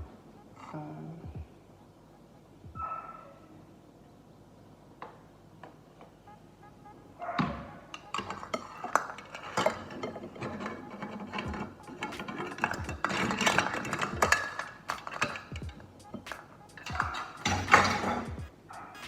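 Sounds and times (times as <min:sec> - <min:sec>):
spoon and cup clinking on bowl: 0:08.0 - 0:18.3.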